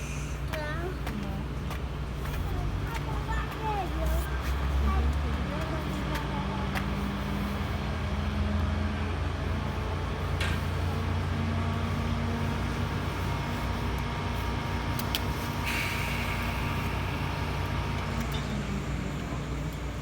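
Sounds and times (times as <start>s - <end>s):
train running rumble: 0.0s - 20.0s
brief hiss: 15.6s - 17.1s.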